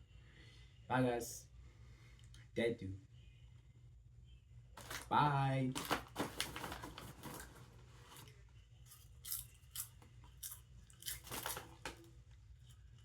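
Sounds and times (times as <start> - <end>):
person chewing popcorn: 8.2 - 13.0.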